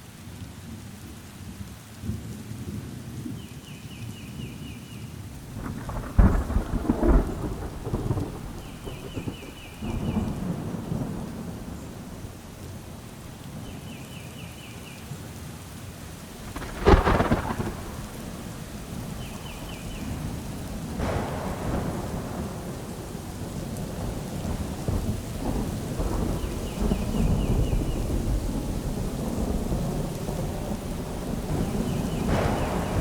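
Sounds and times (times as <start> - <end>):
steady rain: 0.0 - 33.0
rolling low thunder: 5.4 - 13.4, 16.3 - 33.0
sharp thunderclap: 5.5 - 12.4, 16.3 - 33.0.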